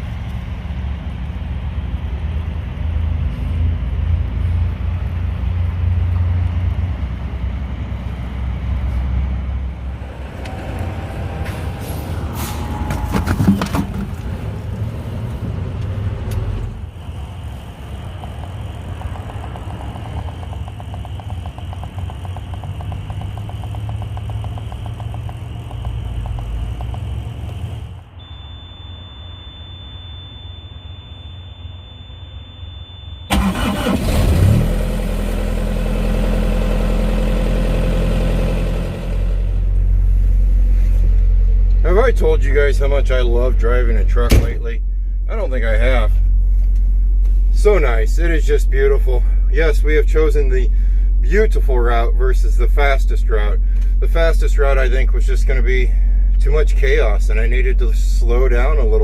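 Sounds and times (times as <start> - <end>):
truck engine and road rumble: 0.0 - 59.0
rattling and clicks: 18.0 - 28.0
faint high tone: 28.2 - 33.3.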